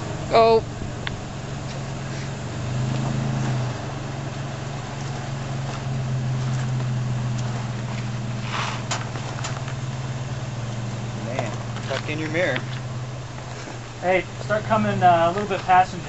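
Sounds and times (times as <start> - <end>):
pickup engine running at low revs: 0.0 - 16.0
short rasp: 8.4 - 9.0.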